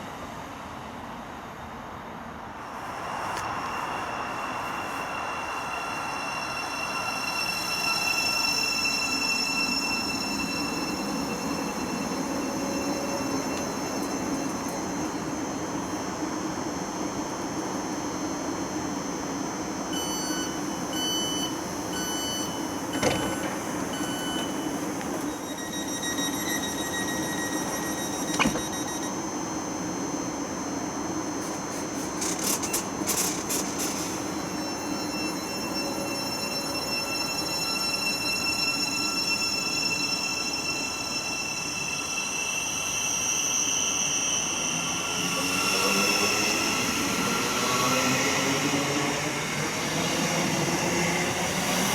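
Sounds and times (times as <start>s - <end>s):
train whine rising in pitch: 1.6s - 51.9s
evenly spaced beeps: 25.4s - 29.1s
train rumbling: 31.2s - 38.4s.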